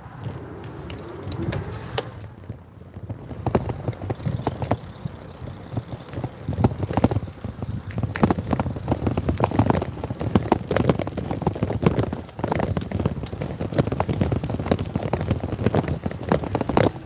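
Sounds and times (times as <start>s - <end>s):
motorbike engine running: 0.0s - 17.0s
wind buffeting microphone: 0.0s - 17.0s.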